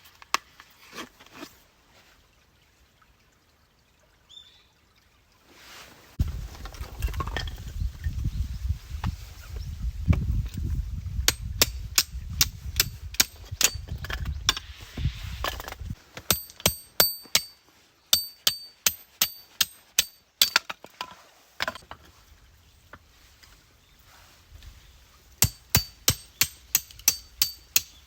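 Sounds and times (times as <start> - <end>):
hammer striking metal: 16.3 - 17.6, 18.2 - 20.6, 25.4 - 27.9.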